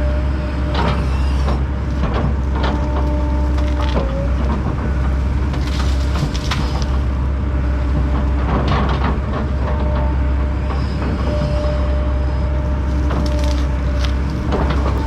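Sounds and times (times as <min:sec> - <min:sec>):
forestry mulcher grinding: 0:00.0 - 0:15.0
wood splintering cracks: 0:05.4 - 0:07.2, 0:12.9 - 0:15.0.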